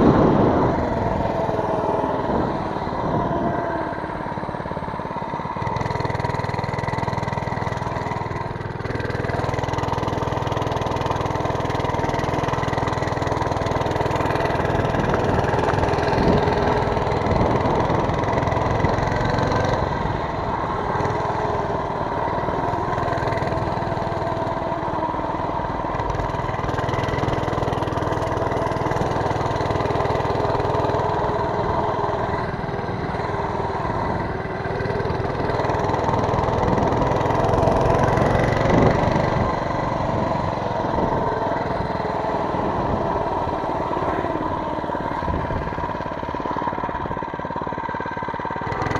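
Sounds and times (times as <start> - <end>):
small engine running: 0.0 - 48.9.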